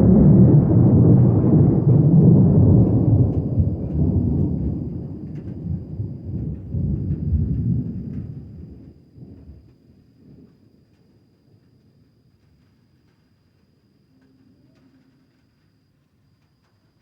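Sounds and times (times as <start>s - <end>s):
deep rolling thunder: 0.0s - 9.7s
light rain falling: 0.0s - 17.0s.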